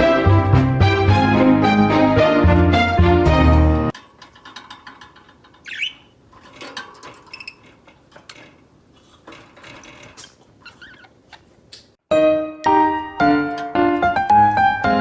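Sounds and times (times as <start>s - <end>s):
budgies chirping: 5.6s - 6.0s, 10.2s - 11.4s.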